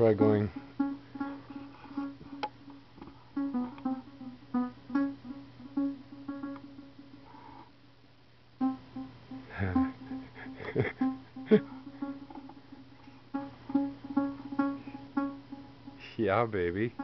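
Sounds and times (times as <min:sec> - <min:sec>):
plucked string notes: 0:03.4 - 0:07.0, 0:08.6 - 0:16.2.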